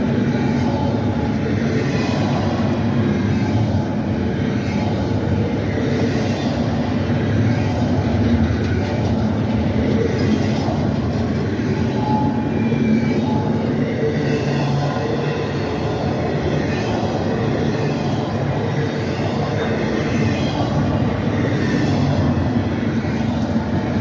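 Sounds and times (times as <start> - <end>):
freight train rumbling on rails: 0.0 - 24.0.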